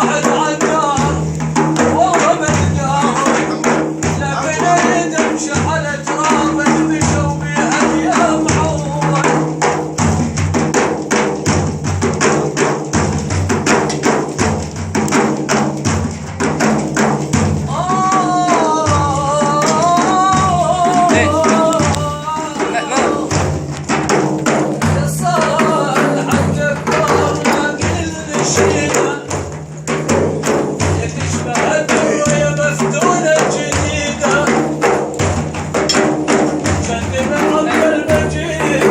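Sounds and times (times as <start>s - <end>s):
man singing: 0.0s - 9.9s, 17.6s - 23.6s, 24.5s - 38.9s
man chanting: 0.0s - 10.2s, 17.5s - 38.9s
frame drums: 0.0s - 38.9s.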